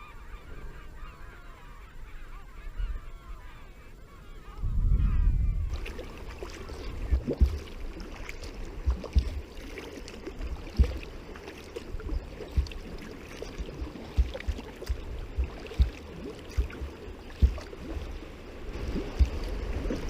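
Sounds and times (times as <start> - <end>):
water splashing around kayak: 5.7 - 20.0
low thumps: 12.5 - 13.0, 13.8 - 17.8.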